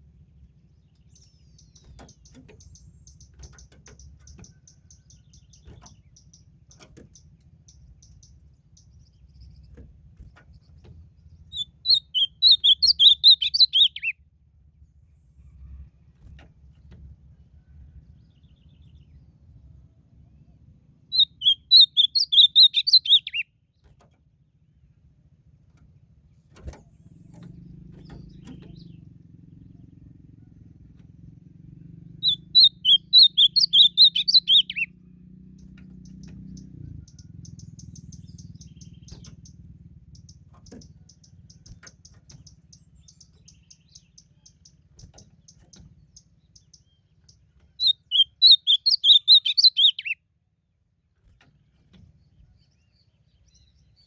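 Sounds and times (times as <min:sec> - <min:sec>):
bird singing high notes: 0:21.1 - 0:23.4, 0:32.1 - 0:34.9, 0:47.8 - 0:50.2.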